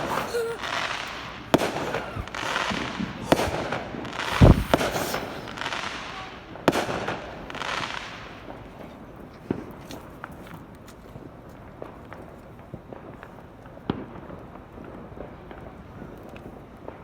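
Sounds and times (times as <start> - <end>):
fireworks banging: 0.0 - 8.8
fireworks crackling hiss: 0.0 - 8.8.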